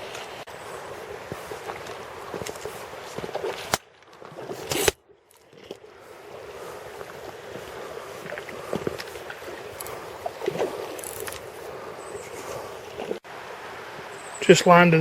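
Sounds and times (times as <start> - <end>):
river water rushing: 5.9 - 14.8.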